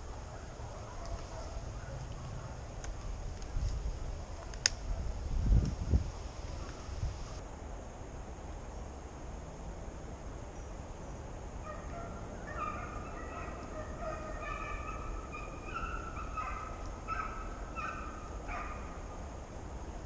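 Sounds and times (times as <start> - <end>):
low wind rumble: 0.0 - 20.0
hounds baying: 11.6 - 19.0.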